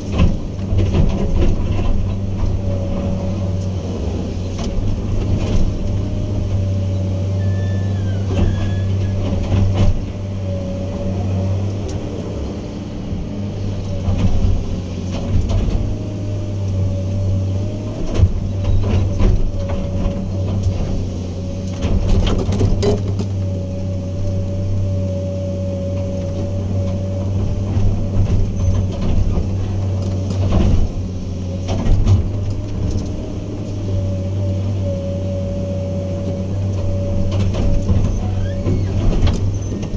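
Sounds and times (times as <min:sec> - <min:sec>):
diesel engine humming: 0:00.0 - 0:39.9
wavering whine: 0:05.7 - 0:15.1
knocks and clanks: 0:08.2 - 0:10.3, 0:21.7 - 0:23.5, 0:26.3 - 0:33.5.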